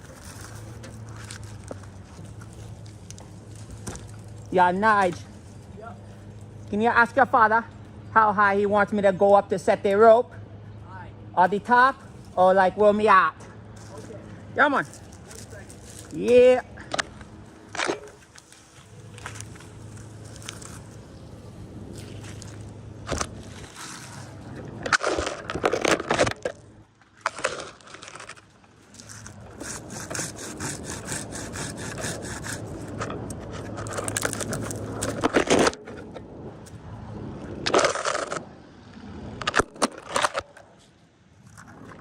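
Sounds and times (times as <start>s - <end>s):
steady low hum: 0.0s - 42.0s
scraping and rasping on wood: 27.3s - 35.8s.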